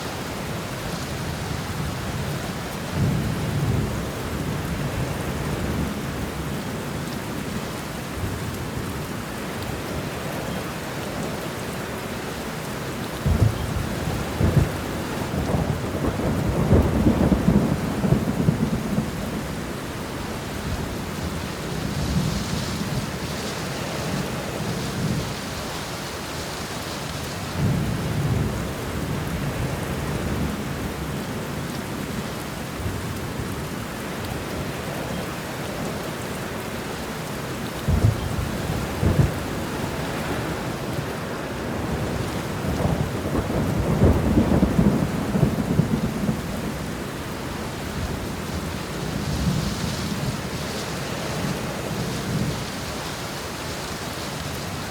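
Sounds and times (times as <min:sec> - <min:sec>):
heavy rain: 0:00.0 - 0:54.9
thunder rumbling: 0:13.2 - 0:23.3, 0:37.8 - 0:53.0.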